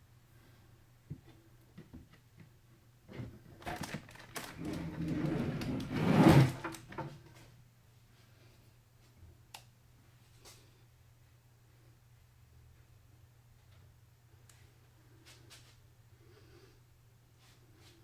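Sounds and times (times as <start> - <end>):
rustling scrape: 3.8 - 6.9.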